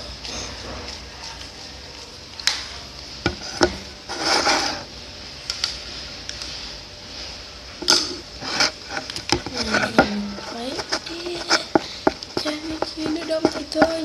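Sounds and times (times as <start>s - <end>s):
slime being stirred: 8.3s - 14.0s.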